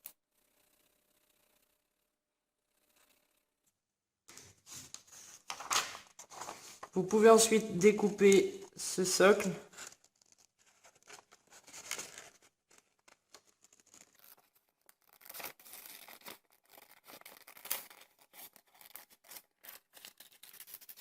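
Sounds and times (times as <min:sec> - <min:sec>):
paper rustling: 0:04.3 - 0:21.0
scissors snipping paper: 0:11.0 - 0:21.0.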